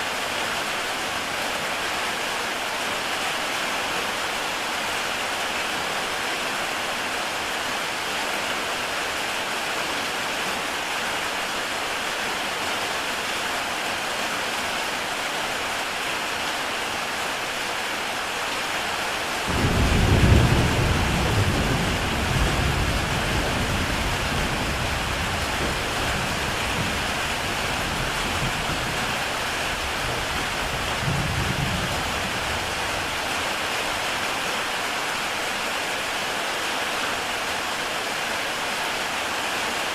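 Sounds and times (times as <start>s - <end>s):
heavy rain on a tile roof: 0.0s - 39.9s
thunder rolling: 19.5s - 33.1s.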